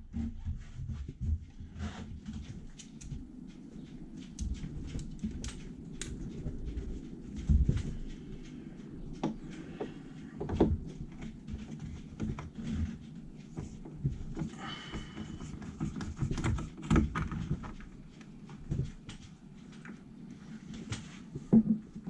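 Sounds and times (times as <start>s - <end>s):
wooden knocks and clunks: 9.1s - 18.0s, 21.0s - 22.0s.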